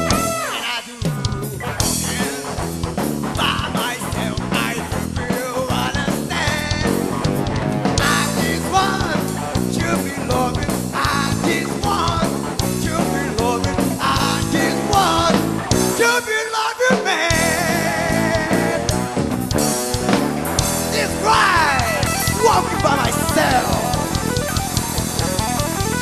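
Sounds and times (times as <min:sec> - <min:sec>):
blues band playing live: 0:00.0 - 0:26.0
bending guitar lines: 0:17.6 - 0:26.0.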